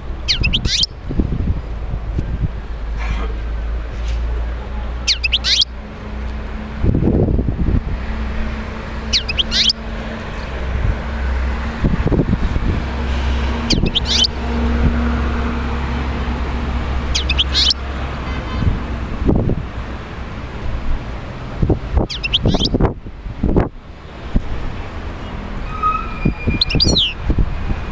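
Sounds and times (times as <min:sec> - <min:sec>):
finch twittering song: 0:00.2 - 0:01.0, 0:05.0 - 0:05.8, 0:09.0 - 0:09.8, 0:13.6 - 0:14.4, 0:17.1 - 0:17.8, 0:22.0 - 0:22.8, 0:26.4 - 0:27.2.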